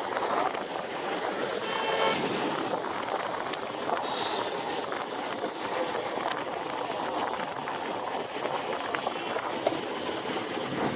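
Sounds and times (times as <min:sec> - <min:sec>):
road and wind noise: 0:00.0 - 0:10.9
vehicle horn toot: 0:01.6 - 0:02.4, 0:04.0 - 0:04.6.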